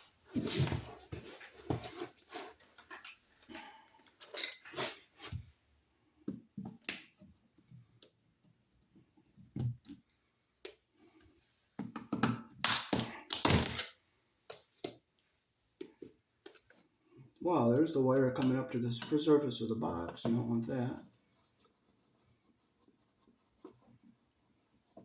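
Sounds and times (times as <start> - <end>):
clicks taps and scraping: 0.3 - 5.6, 14.4 - 19.4.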